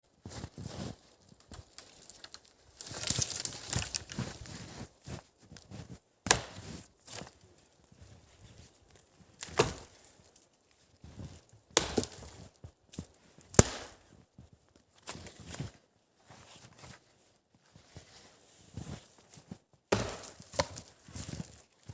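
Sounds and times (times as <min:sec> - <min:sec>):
wood being chopped: 0:06.2 - 0:06.7, 0:09.4 - 0:09.9, 0:11.7 - 0:12.3, 0:13.5 - 0:14.0, 0:19.9 - 0:20.9.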